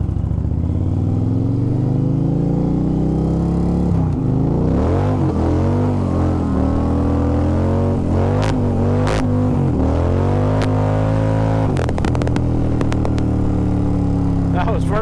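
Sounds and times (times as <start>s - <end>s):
motorcycle engine accelerating: 0.0s - 15.0s
clicking: 11.8s - 13.3s.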